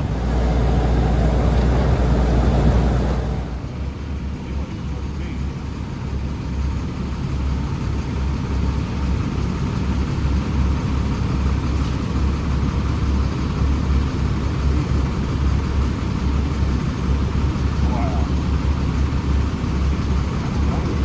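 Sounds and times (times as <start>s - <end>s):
heavy diesel engine rumbling: 0.0s - 21.0s.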